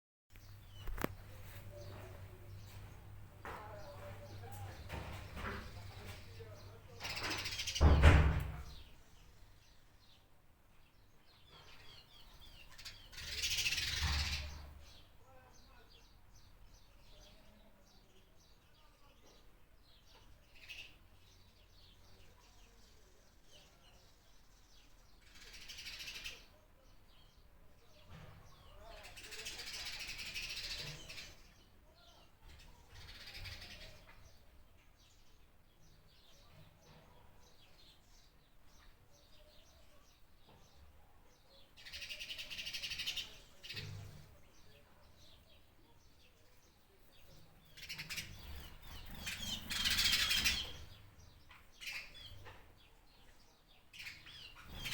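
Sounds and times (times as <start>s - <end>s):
birds chirping and singing: 0.3s - 10.2s, 11.3s - 17.4s, 27.1s - 54.9s.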